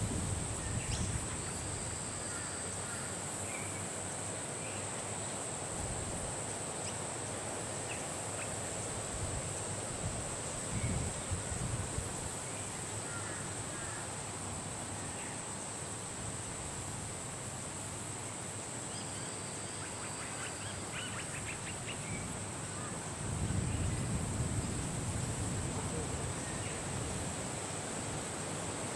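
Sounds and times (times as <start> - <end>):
high insect drone: 0.0 - 28.9.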